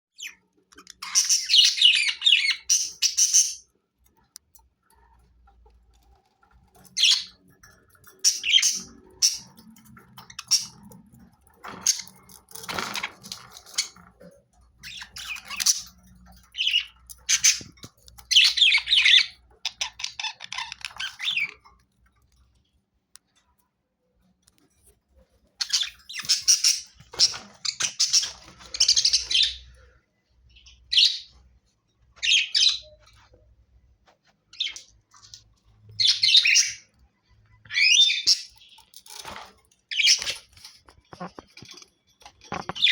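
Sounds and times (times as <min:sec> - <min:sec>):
budgerigars chirping and chattering: 0:00.2 - 0:04.2, 0:06.7 - 0:21.7, 0:25.6 - 0:31.4, 0:32.2 - 0:33.3, 0:34.6 - 0:36.9, 0:37.6 - 0:42.9.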